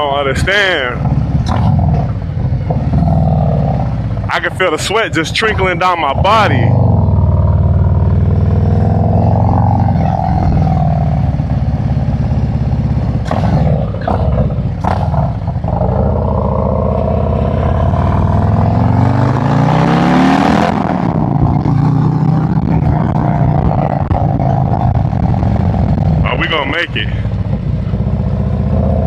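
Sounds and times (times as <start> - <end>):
motorcycle engine running: 0.0 - 29.0
sharp knocks: 13.2 - 15.6.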